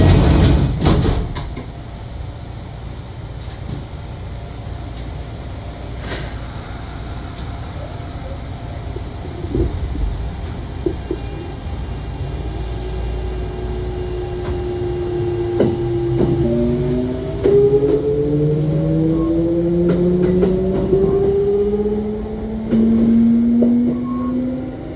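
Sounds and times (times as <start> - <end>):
train cabin hum: 0.0 - 24.9
train inverter tone rising: 6.6 - 24.9.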